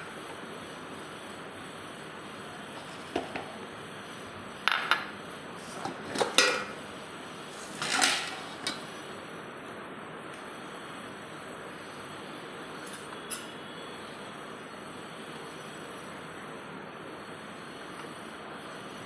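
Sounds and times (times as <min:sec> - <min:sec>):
steady background hiss: 0:00.0 - 0:19.0
utensils and dishes clattering: 0:05.8 - 0:06.8, 0:07.7 - 0:08.8.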